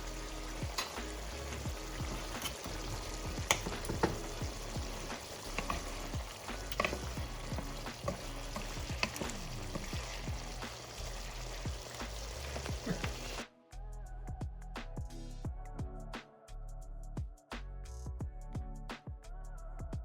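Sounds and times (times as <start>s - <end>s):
chicken sizzling in a frying pan: 0.0s - 13.4s.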